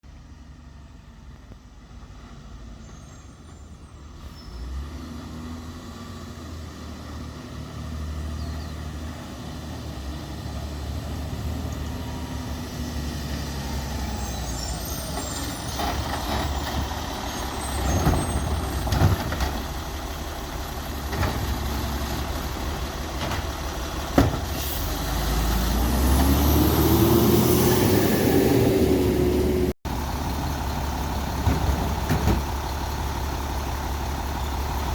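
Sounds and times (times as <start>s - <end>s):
garbage truck diesel engine: 0.0s - 34.9s
sharp knocks and bangs: 24.1s - 24.6s.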